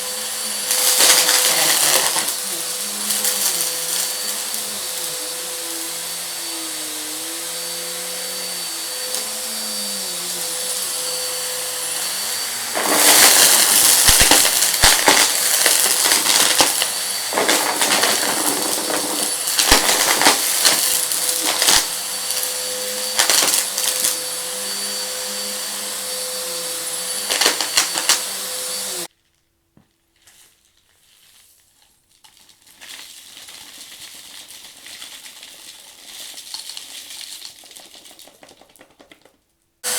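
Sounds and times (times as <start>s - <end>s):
debris rattling in vacuum: 0.0s - 29.1s, 32.6s - 39.9s
vacuum cleaner running: 0.0s - 29.1s.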